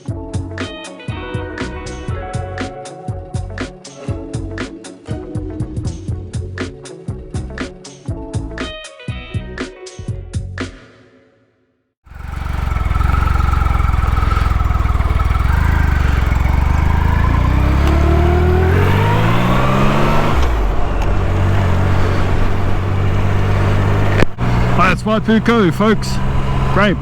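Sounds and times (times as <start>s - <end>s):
motorcycle engine accelerating: 12.1s - 27.0s.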